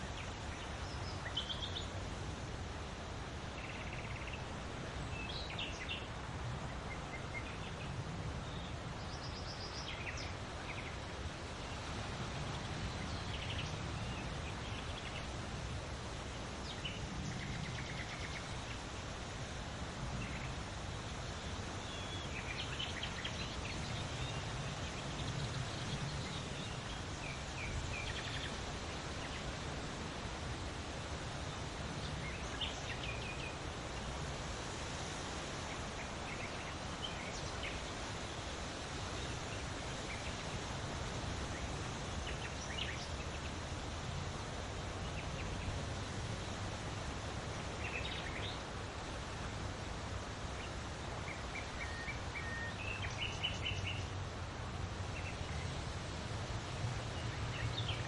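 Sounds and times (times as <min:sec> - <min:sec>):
small birds chirping: 0:00.0 - 0:02.2, 0:03.0 - 0:43.8, 0:44.4 - 0:54.2, 0:55.0 - 0:58.0
wind blowing in gusts: 0:00.0 - 0:58.0.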